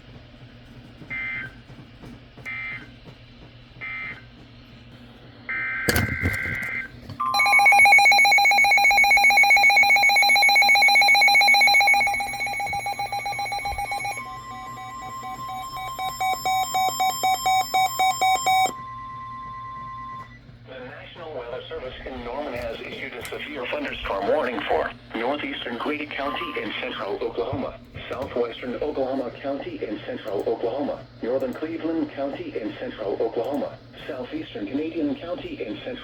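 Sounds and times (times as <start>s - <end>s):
rapidly pulsing electronic alarm beep: 1.1s - 1.6s, 2.5s - 2.9s, 3.8s - 4.2s, 5.5s - 20.4s
beeps: 5.9s - 20.4s
steady high alert tone: 7.2s - 20.2s.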